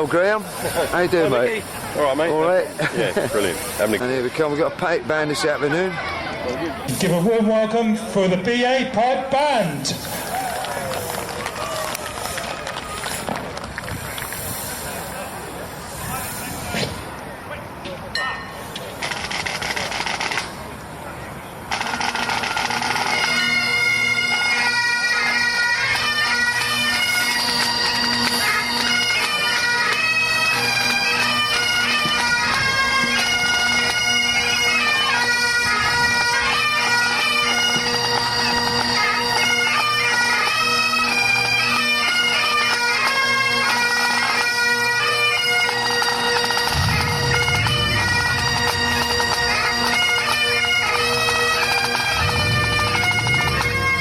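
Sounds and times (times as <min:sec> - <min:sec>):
bagpipe drones: 0:00.0 - 0:08.1, 0:21.7 - 0:54.0
bagpipes playing a tune: 0:00.0 - 0:08.1, 0:21.7 - 0:54.0.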